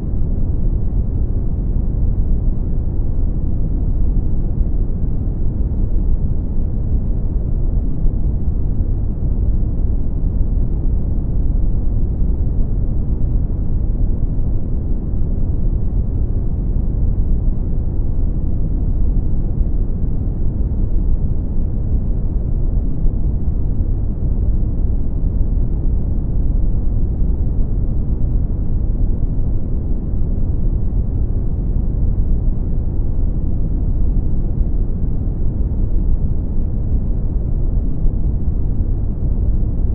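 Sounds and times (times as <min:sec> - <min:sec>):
brown noise rumbling hiss: 0:00.0 - 0:39.9.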